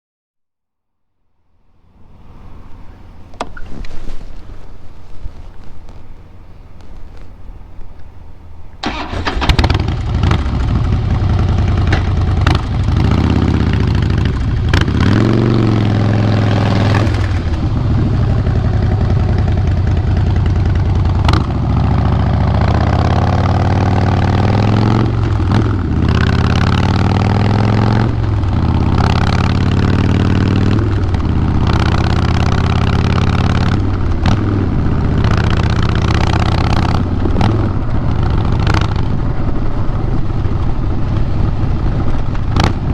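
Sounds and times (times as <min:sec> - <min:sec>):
motorcycle engine revving: 0:08.8 - 0:42.9.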